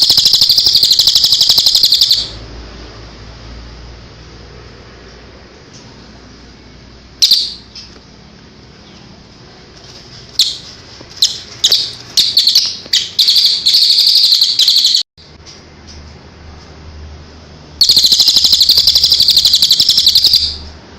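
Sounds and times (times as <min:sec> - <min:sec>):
songbird chirping and trilling: 0:00.0 - 0:02.4, 0:07.2 - 0:08.0, 0:10.4 - 0:15.1, 0:17.8 - 0:20.7.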